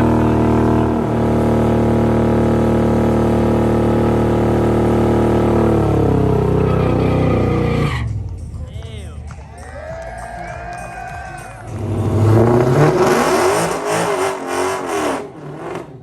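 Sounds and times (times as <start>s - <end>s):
car engine at high revs: 0.0s - 8.4s, 11.7s - 16.0s.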